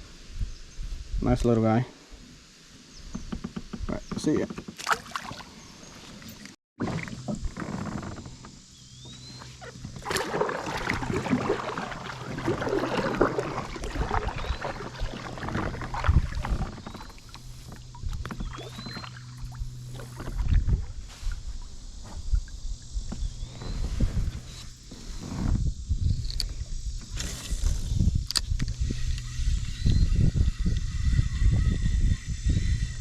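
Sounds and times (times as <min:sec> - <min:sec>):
knocks and thumps against hull: 0:03.1 - 0:05.1, 0:06.8 - 0:21.4, 0:22.0 - 0:25.7
water sloshing and splashing: 0:04.7 - 0:08.4, 0:09.4 - 0:24.5.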